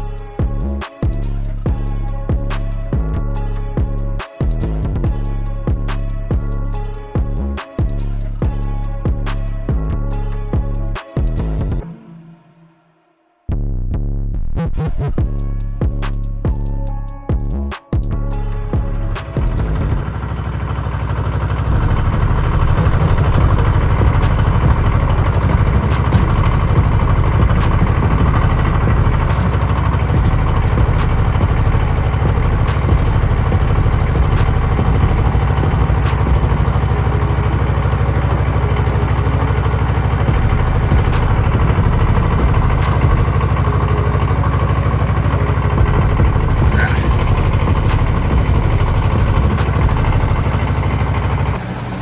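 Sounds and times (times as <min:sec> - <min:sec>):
engine idling: 0:18.1 - 0:52.0.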